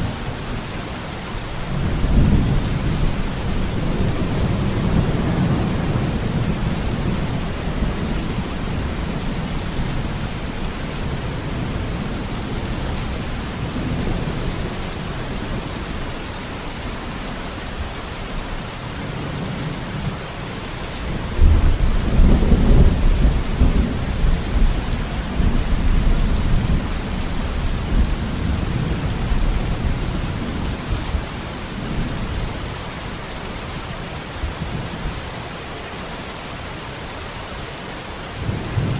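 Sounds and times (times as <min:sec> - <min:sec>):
heavy rain: 0:00.0 - 0:38.9
thunder rumbling: 0:01.6 - 0:17.0, 0:21.0 - 0:32.5.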